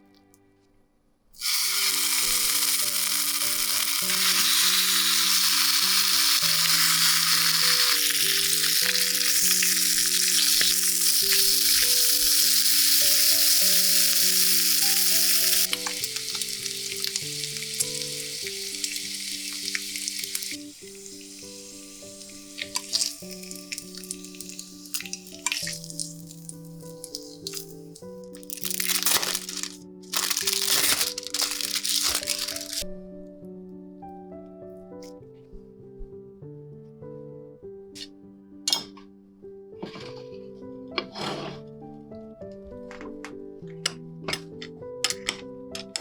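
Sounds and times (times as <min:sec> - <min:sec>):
soft background music: 0:00.0 - 0:46.0
food sizzling in a pan: 0:01.4 - 0:32.8.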